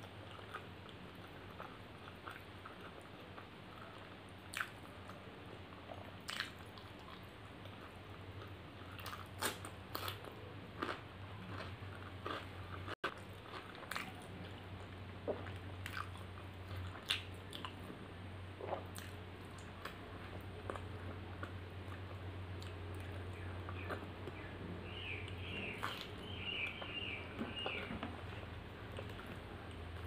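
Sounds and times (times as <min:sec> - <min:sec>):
wet chewing mouth sounds: 0:00.0 - 0:05.2, 0:05.8 - 0:10.2, 0:10.8 - 0:18.0, 0:18.6 - 0:30.0
steady low hum: 0:00.0 - 0:30.0.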